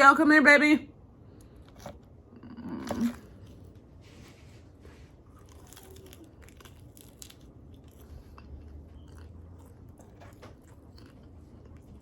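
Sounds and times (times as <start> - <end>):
low steady hum: 0.0 - 12.0
chewing crispy chicken: 5.1 - 12.0.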